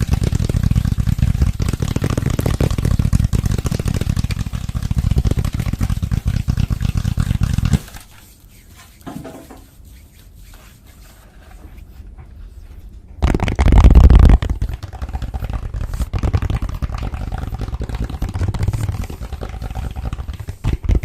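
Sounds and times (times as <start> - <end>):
fingers tapping on microphone: 0.0 - 6.6, 13.2 - 21.0.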